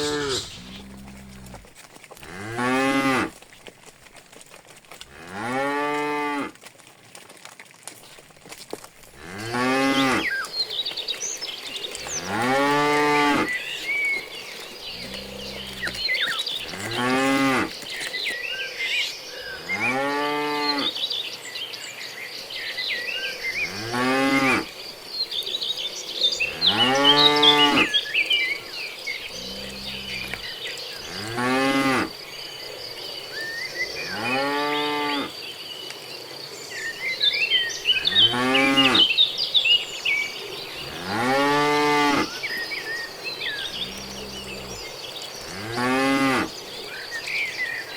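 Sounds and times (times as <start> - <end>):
insect buzzing: 0.0 - 1.7
birds chirping: 0.0 - 3.3, 9.2 - 47.9
cattle mooing: 0.0 - 3.3, 14.9 - 17.7, 26.5 - 27.9, 29.3 - 30.5, 43.7 - 44.9.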